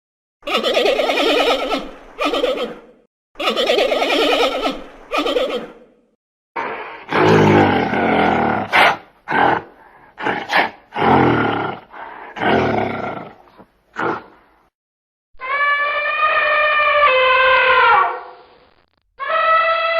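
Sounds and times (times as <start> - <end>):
low-pitched animal calls: 15.4 - 18.4, 19.2 - 19.9.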